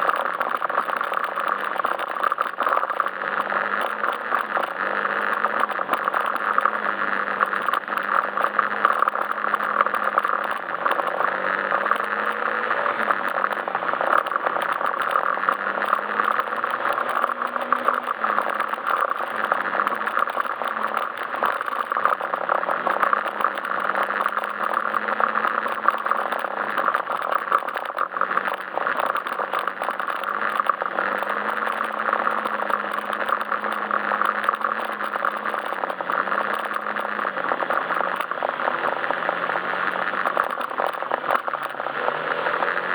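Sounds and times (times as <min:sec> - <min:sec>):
scooter engine running: 0:00.0 - 0:42.9.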